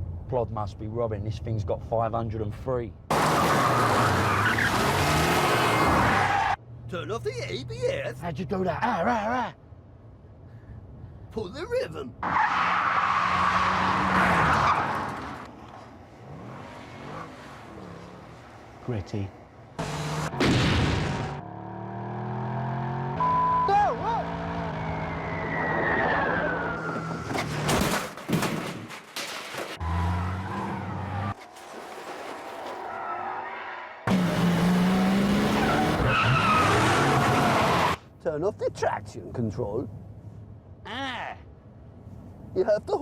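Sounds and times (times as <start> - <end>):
car tyres skidding: 3.1 - 6.6, 12.2 - 21.4, 23.1 - 38.0
tyres squealing: 35.4 - 38.0.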